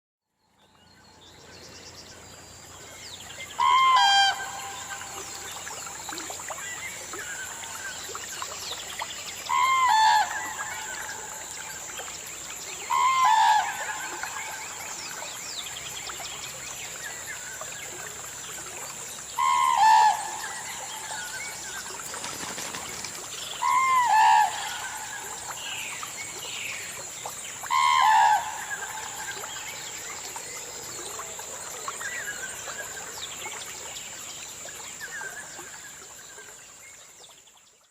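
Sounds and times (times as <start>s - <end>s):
cranes trumpeting: 3.6s - 4.6s
high insect drone: 16.4s - 33.6s.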